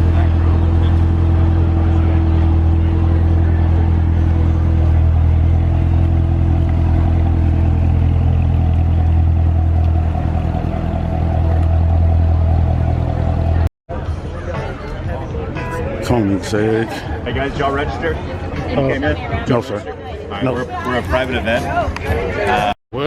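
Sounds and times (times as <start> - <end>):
car engine running: 0.0 - 13.7.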